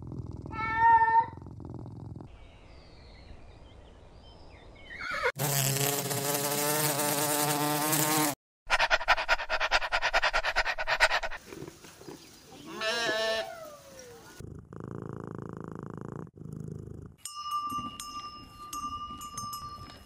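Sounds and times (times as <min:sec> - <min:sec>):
bee buzzing: 0:05.3 - 0:08.4
dog panting: 0:08.7 - 0:11.7
goat bleating: 0:12.6 - 0:13.6.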